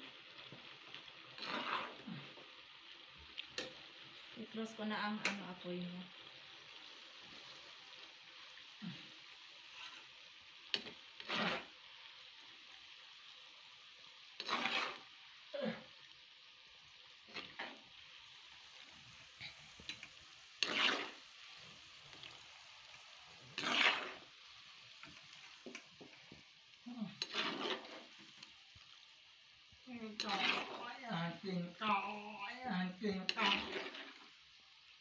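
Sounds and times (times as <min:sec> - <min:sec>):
vegetables sizzling in oil: 0:00.0 - 0:35.0
metal spoon scraping a wok: 0:01.4 - 0:02.1, 0:09.6 - 0:10.1, 0:10.7 - 0:11.7, 0:14.4 - 0:15.1, 0:19.9 - 0:21.3, 0:23.6 - 0:24.2, 0:27.1 - 0:28.2, 0:30.1 - 0:30.8, 0:33.2 - 0:34.2.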